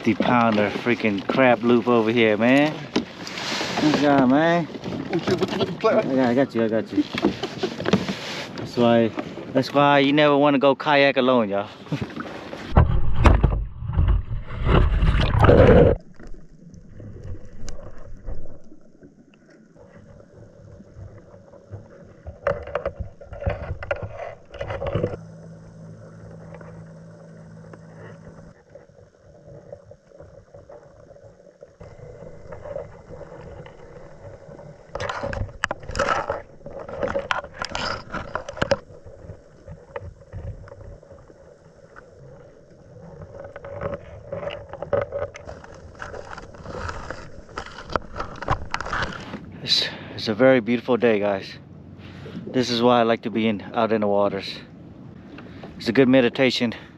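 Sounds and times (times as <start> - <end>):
paddle strokes splashing: 0.0 - 9.6, 11.7 - 49.7
water sloshing against hull: 0.0 - 56.9.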